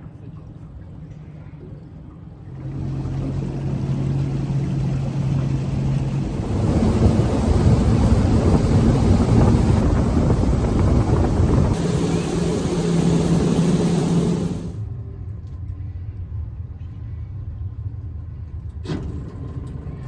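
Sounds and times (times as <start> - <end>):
boat engine running: 2.5 - 14.8
rush of wind and water: 2.7 - 14.8.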